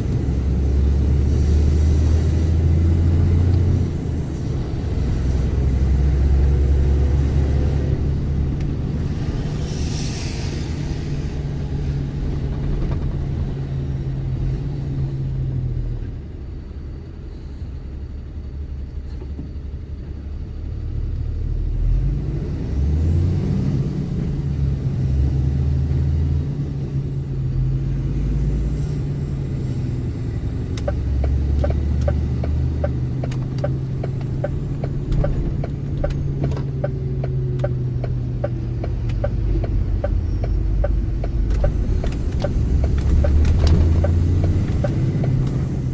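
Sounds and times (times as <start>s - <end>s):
truck engine droning: 0.0s - 45.9s
regular ticking: 30.8s - 45.6s.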